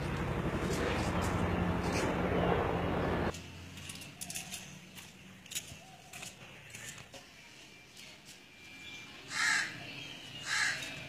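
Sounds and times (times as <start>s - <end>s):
bird cawing: 9.3s - 9.8s, 10.4s - 11.0s.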